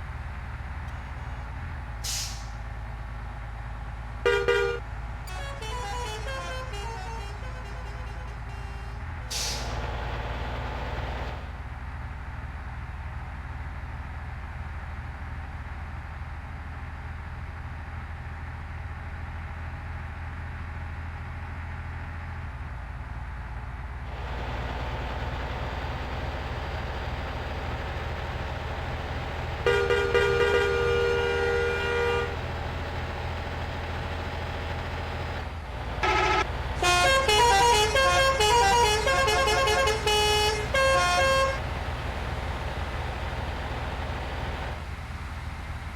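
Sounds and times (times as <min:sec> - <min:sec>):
truck engine rumble: 0:00.0 - 0:45.9
truck horn: 0:04.2 - 0:10.0, 0:29.4 - 0:33.2, 0:35.8 - 0:42.4.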